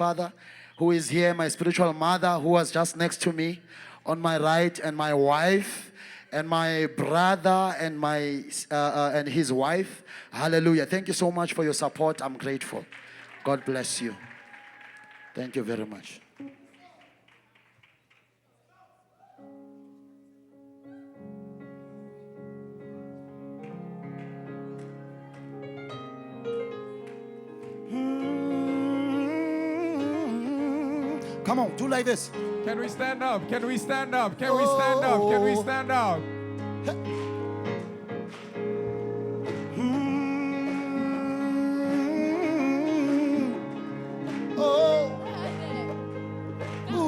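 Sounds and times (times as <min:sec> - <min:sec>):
keyboard sustained chords: 0:19.6 - 0:47.0
person singing with vibrato: 0:27.7 - 0:32.7, 0:33.4 - 0:37.2, 0:38.6 - 0:47.0.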